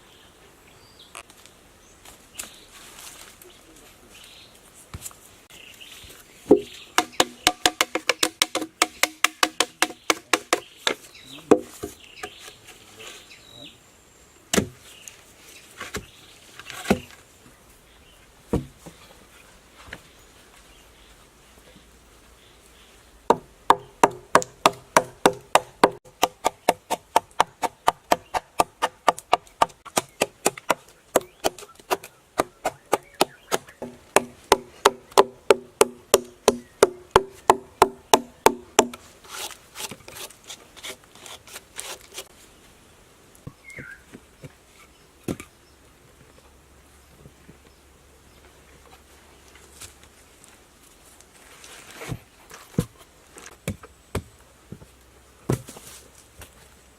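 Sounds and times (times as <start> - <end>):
axe chopping wood: 6.5 - 12.4, 14.5 - 14.8, 23.3 - 40.3, 55.5 - 55.8.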